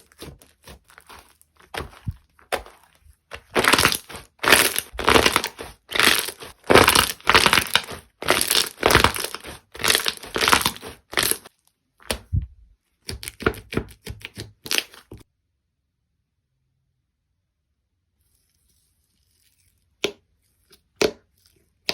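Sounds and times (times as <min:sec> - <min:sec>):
slime crackling squeezed by hand: 0:00.0 - 0:11.5.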